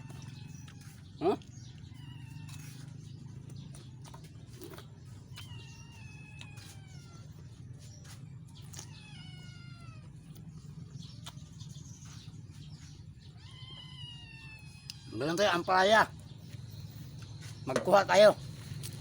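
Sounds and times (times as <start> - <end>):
cat meowing: 5.3 - 7.4, 8.7 - 10.1, 13.3 - 15.8.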